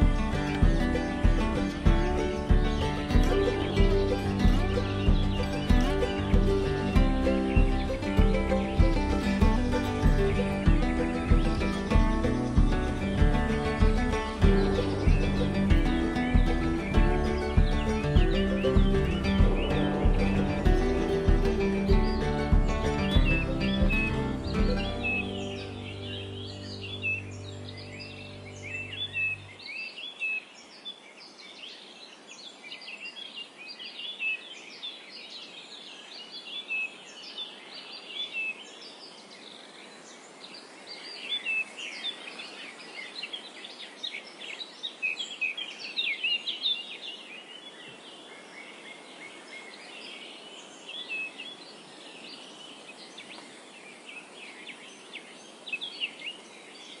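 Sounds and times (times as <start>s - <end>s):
music track: 0.0s - 29.5s
small birds chirping: 0.0s - 57.0s
steady background hiss: 0.0s - 57.0s.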